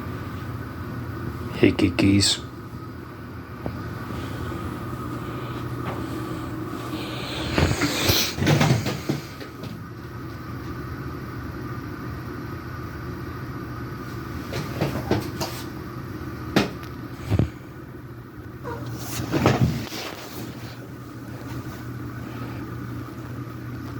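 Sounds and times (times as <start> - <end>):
steady background hum: 0.0 - 23.9
cats fighting and scuffling: 2.6 - 11.0, 14.0 - 23.9.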